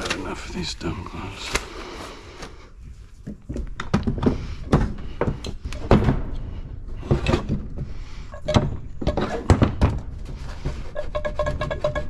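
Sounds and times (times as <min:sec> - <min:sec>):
handling knocks and clatters: 0:03.1 - 0:12.0.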